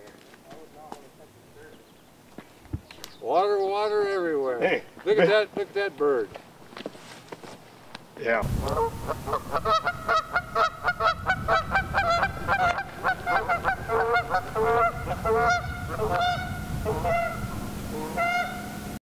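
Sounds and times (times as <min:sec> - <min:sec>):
bird calling: 0:08.4 - 0:19.0.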